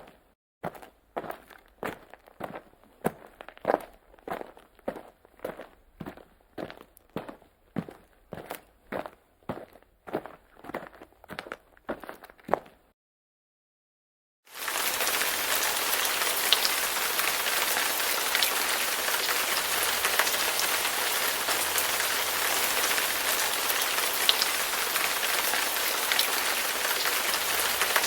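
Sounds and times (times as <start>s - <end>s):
rain on hard surfaces: 14.5s - 28.0s
close water drips: 14.6s - 28.0s.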